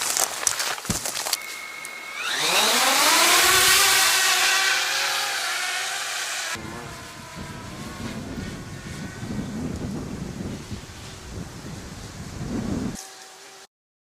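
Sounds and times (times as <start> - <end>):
motor spooling up whine: 1.4 - 11.2.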